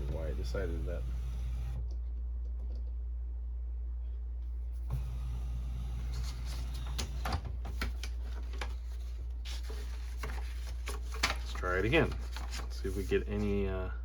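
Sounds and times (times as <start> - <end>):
printer motor whirring: 0.0 - 1.8, 4.8 - 8.2.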